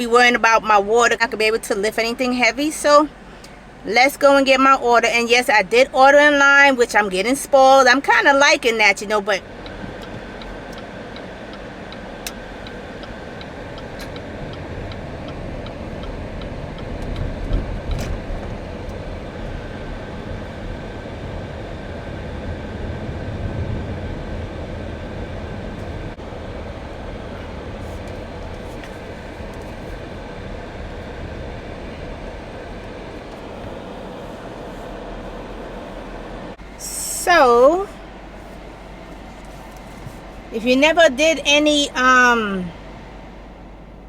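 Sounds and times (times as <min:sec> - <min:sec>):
car road and engine rumble: 0:00.0 - 0:44.0.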